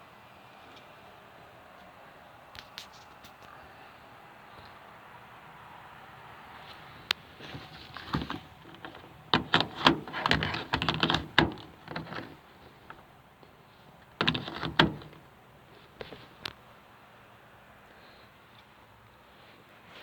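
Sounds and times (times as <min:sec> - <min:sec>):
sharp clicks knocks and rattles: 0:07.6 - 0:13.1, 0:14.0 - 0:15.3.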